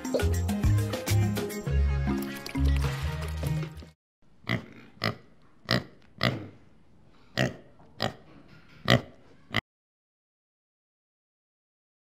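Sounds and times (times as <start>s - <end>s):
pig grunting: 4.4s - 6.6s, 7.4s - 9.6s.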